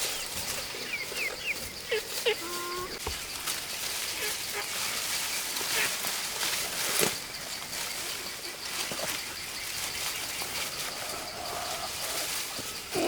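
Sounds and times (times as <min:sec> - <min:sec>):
bird calls: 0:00.0 - 0:06.1, 0:06.9 - 0:13.0.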